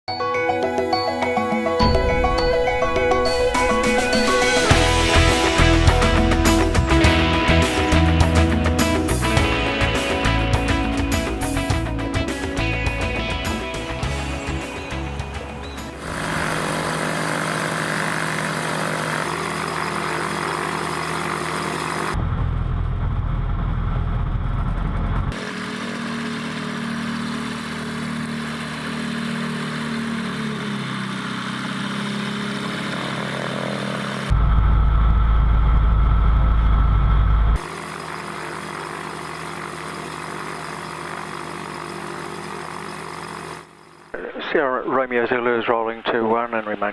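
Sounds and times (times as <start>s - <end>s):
propeller aircraft engine running: 0.6s - 44.6s.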